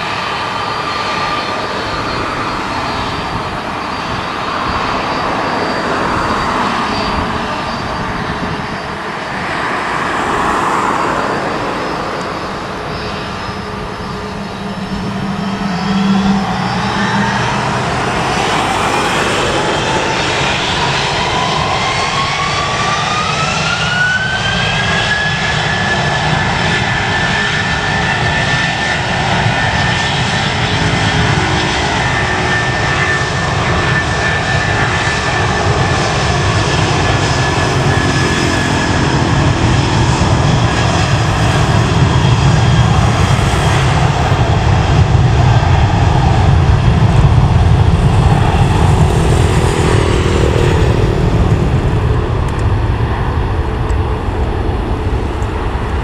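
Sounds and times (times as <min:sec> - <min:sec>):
jet engines spooling up: 0:00.0 - 0:56.0
heavy rumble: 0:34.7 - 0:56.0.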